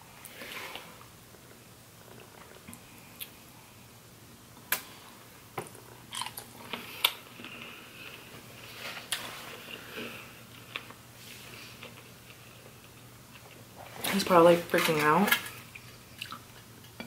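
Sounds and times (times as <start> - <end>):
person chewing and crunching: 5.7 - 8.4, 11.6 - 13.6, 15.4 - 17.0.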